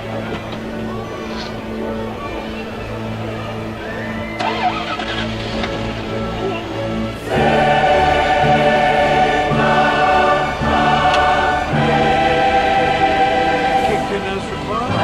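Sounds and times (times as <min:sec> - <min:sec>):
choir singing held chords: 0:05.6 - 0:15.0.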